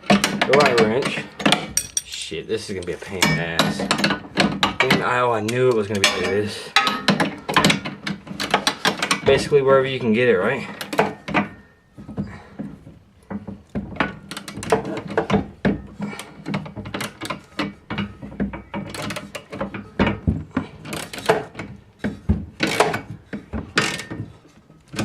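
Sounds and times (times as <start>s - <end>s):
metal clicks and rattles: 0.0s - 9.4s, 13.2s - 21.8s
wrench tightening bolt: 22.6s - 23.0s, 23.8s - 24.2s.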